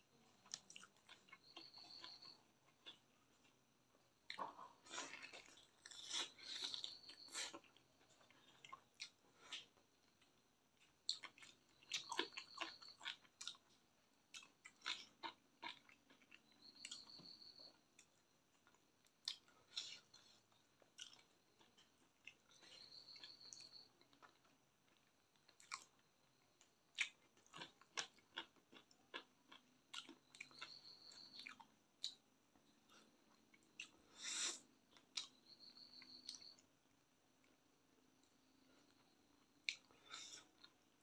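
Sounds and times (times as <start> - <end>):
wet chewing: 4.3 - 17.2, 18.0 - 26.0.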